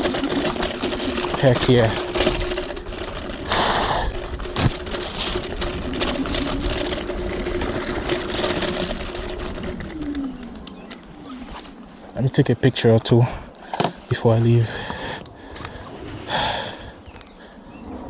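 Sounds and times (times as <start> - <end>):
electric scooter motor whining: 0.0 - 12.0.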